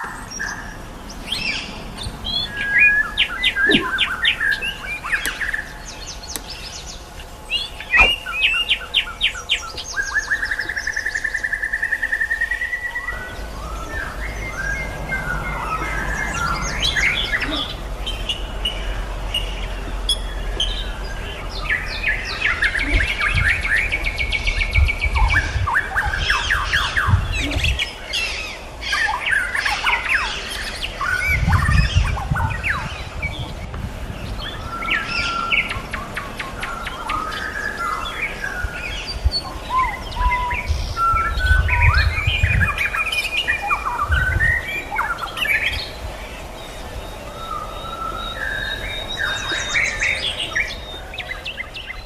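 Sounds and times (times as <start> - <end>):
birds singing: 0.0 - 52.0
low bumps: 1.0 - 9.1.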